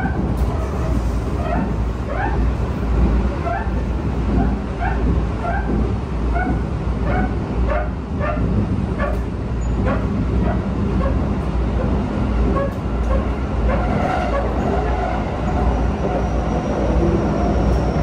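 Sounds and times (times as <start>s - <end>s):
train low rumble: 0.0s - 18.0s.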